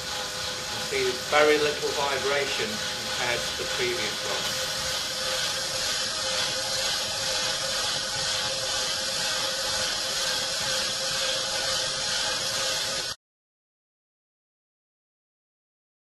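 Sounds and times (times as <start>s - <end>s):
vibration generator buzzing: 0.0s - 13.2s.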